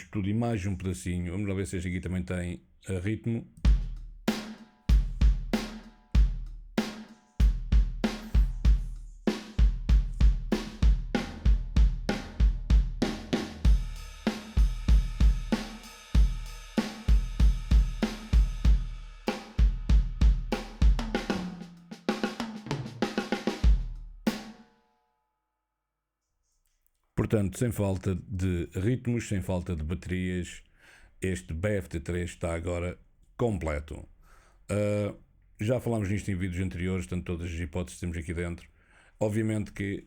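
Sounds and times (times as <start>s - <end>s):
drum kit playing groove: 3.6s - 24.5s.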